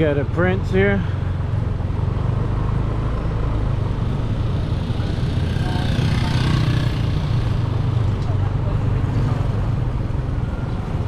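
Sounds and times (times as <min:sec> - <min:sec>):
road and wind noise: 0:00.0 - 0:11.0
motorbike engine running: 0:04.3 - 0:11.0.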